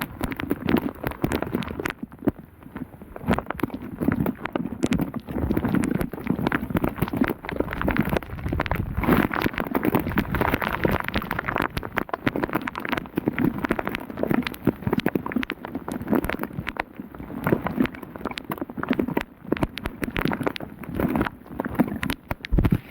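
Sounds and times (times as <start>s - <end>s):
heavy rain patter: 7.0s - 13.0s.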